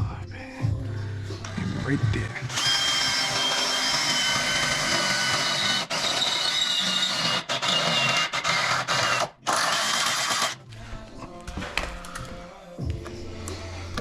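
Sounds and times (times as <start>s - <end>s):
power drill whining: 1.4s - 10.6s.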